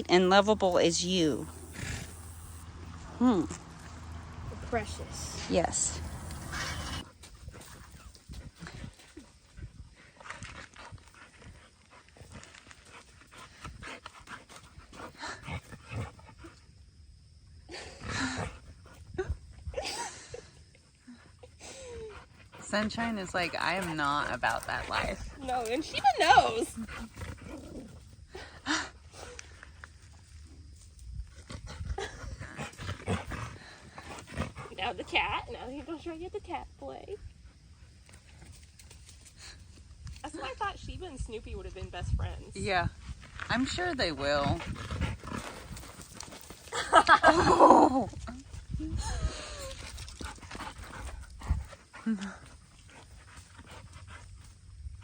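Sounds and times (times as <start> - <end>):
dog panting: 10.0 - 16.6, 21.4 - 27.6, 31.8 - 36.2, 44.0 - 46.7, 49.7 - 55.0.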